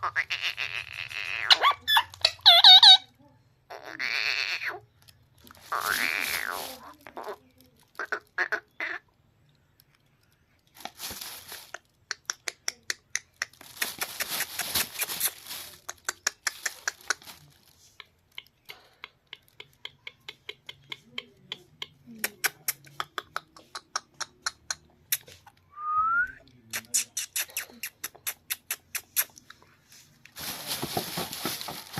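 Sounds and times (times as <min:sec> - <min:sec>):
parrot chirping and squawking: 0:00.0 - 0:03.1, 0:03.7 - 0:04.9, 0:05.6 - 0:07.4, 0:08.0 - 0:09.1.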